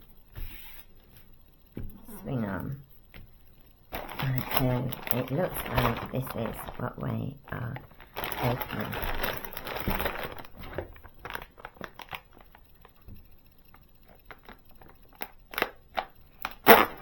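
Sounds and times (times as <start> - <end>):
plastic packaging crinkling: 3.9 - 17.0.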